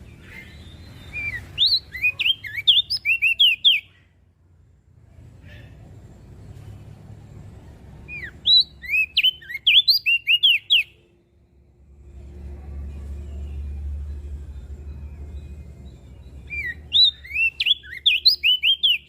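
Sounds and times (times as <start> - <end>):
bird singing whistled notes: 0.0 - 4.0, 8.1 - 11.1, 13.4 - 19.0
low background rumble: 10.9 - 19.0.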